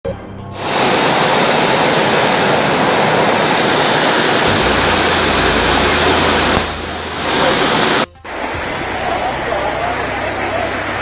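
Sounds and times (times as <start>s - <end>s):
low hum: 0.6s - 9.3s
rushing floodwater: 0.6s - 11.0s
torrential rain: 0.6s - 11.0s.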